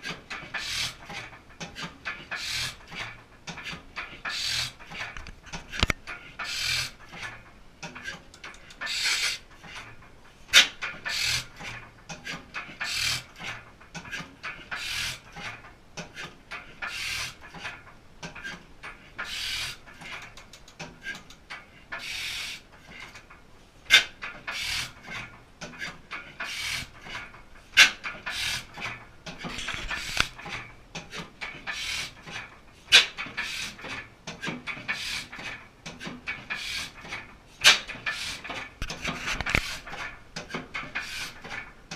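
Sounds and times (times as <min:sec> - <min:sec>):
sharp valve gear clicks: 0:19.2 - 0:21.4.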